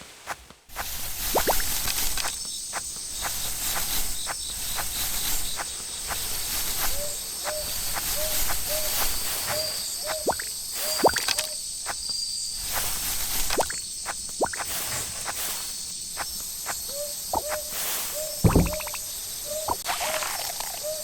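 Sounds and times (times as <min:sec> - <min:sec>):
insects chirping: 0:00.1 - 0:21.0
water dripping and plopping: 0:18.4 - 0:19.0.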